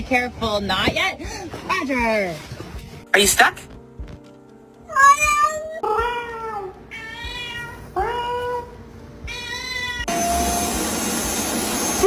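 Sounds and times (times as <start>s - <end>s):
cat meowing: 4.9s - 10.1s.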